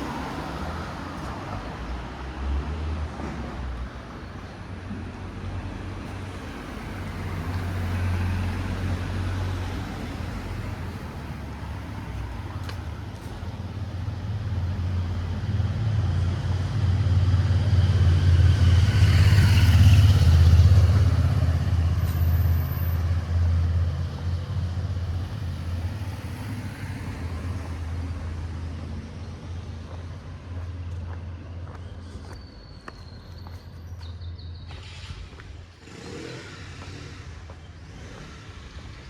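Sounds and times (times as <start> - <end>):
vehicle passing close by: 6.4 - 28.5.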